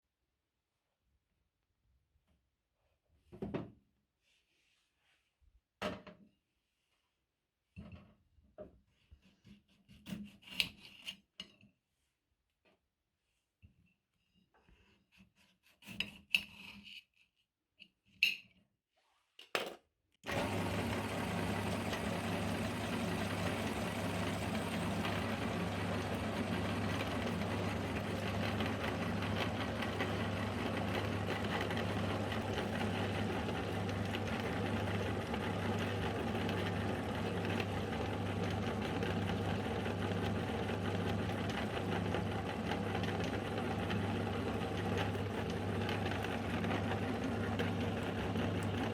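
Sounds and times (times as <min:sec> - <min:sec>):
meat grinder motor hum: 0:20.2 - 0:48.9.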